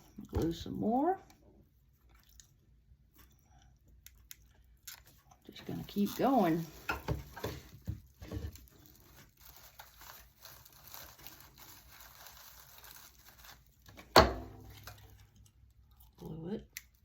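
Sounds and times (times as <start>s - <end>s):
raffia strands rustling: 8.5s - 13.9s.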